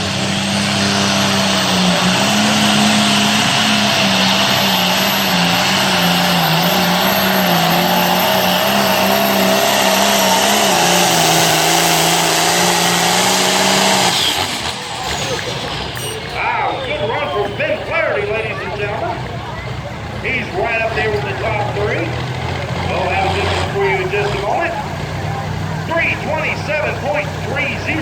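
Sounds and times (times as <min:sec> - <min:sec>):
tractor engine at full throttle: 0:00.0 - 0:28.0.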